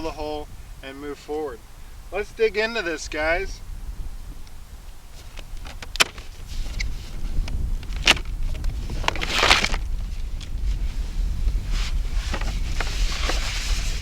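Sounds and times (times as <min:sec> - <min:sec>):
rustle: 0:00.0 - 0:14.0
wind on microphone: 0:00.0 - 0:14.0.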